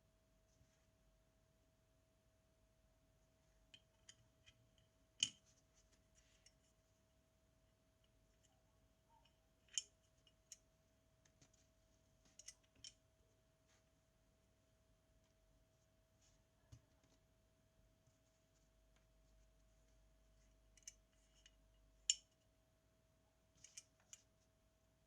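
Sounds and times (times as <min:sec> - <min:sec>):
faint steady hum: 0:00.0 - 0:25.0
metal tools clicking and tapping: 0:09.2 - 0:10.6, 0:12.3 - 0:13.0, 0:20.8 - 0:22.4.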